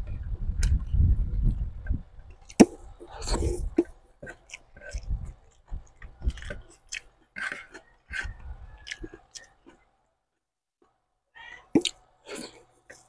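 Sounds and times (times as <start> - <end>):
close chewing: 2.2 - 9.8, 11.8 - 13.0
wet mouth clicks: 2.4 - 9.8, 11.8 - 13.0.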